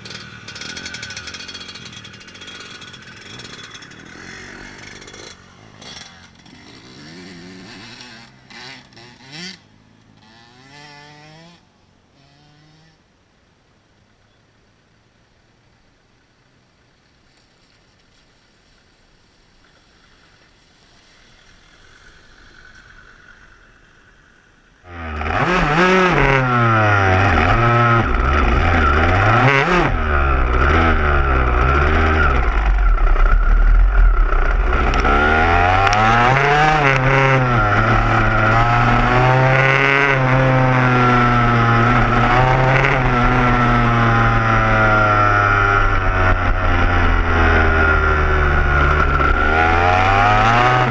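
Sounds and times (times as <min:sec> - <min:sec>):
dirt bike engine revving: 0:00.0 - 0:13.0, 0:24.8 - 0:50.9.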